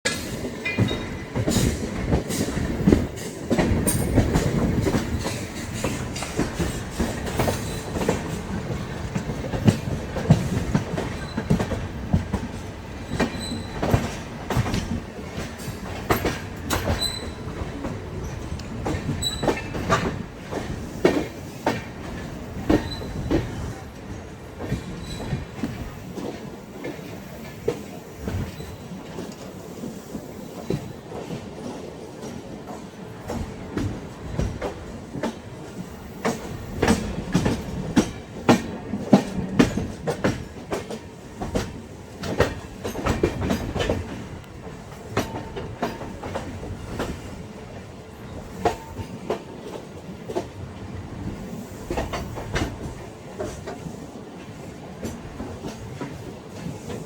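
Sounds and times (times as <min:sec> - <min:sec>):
train coaches rumbling: 0:00.0 - 0:57.0
wheels clicking over rail joints: 0:30.6 - 0:50.6.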